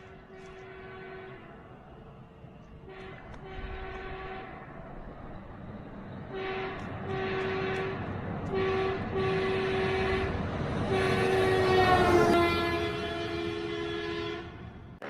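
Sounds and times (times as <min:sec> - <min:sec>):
train horn blasts: 0:00.0 - 0:01.6, 0:02.8 - 0:04.7, 0:06.3 - 0:15.0.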